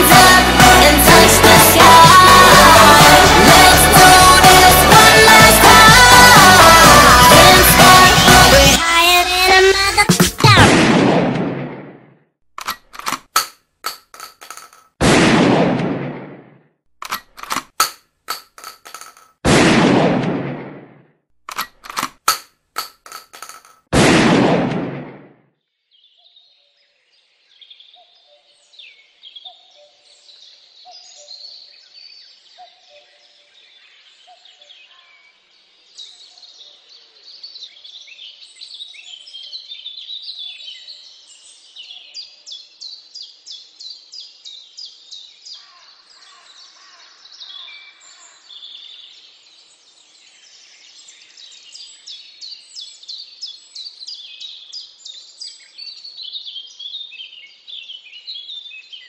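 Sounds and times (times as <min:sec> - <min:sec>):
birds chirping and singing: 0:26.0 - 0:59.0.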